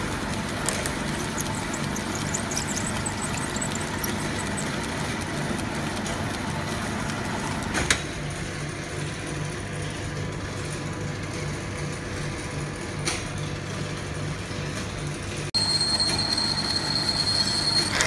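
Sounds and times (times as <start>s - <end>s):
metal lathe humming: 0.3s - 7.8s.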